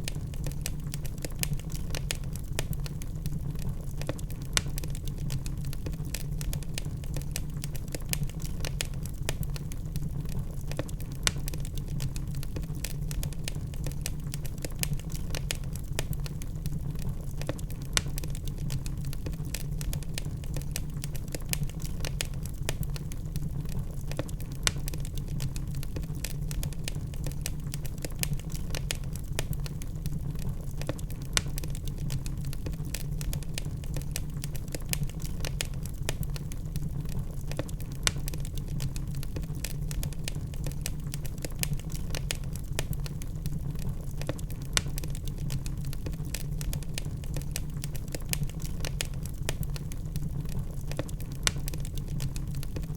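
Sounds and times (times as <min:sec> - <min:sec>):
fire crackling and popping: 0:00.0 - 0:52.9
low fire rumble: 0:00.0 - 0:52.9.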